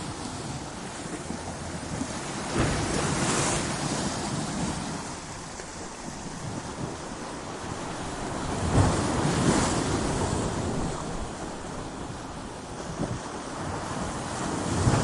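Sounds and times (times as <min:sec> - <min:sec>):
waves breaking against rocks: 0:00.0 - 0:15.0.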